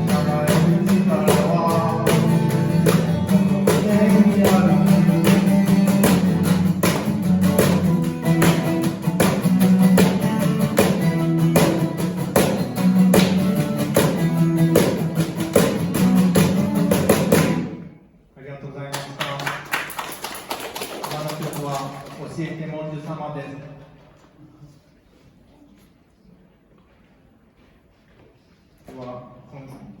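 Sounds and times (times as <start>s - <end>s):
strummed acoustic guitar: 0.0s - 17.8s.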